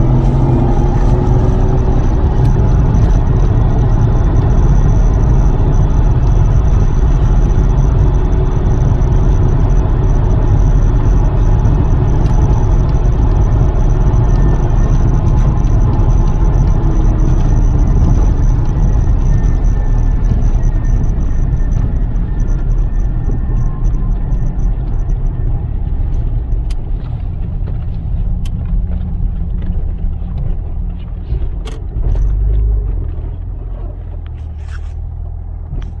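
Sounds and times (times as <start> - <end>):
faint high whine: 0.0 - 26.4
car engine rumble: 0.0 - 36.0
scattered clicks: 0.1 - 33.5.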